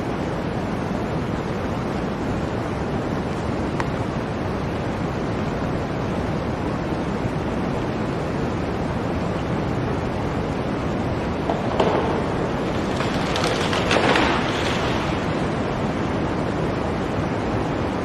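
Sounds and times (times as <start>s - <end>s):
blizzard wind blowing: 0.0s - 18.0s.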